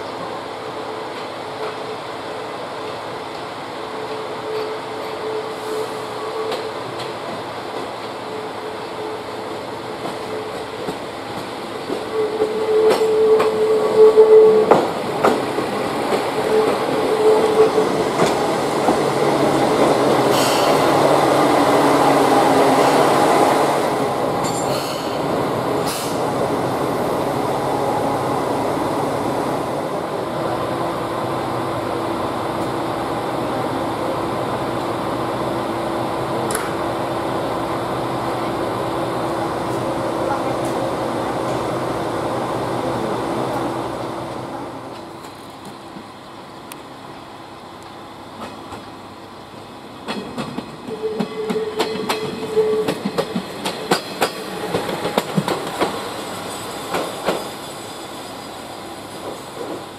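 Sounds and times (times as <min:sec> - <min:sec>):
diesel railcar engine: 0:00.0 - 0:59.9
train brake squeal: 0:04.0 - 0:06.8, 0:12.1 - 0:14.8, 0:20.3 - 0:20.9, 0:24.4 - 0:26.3.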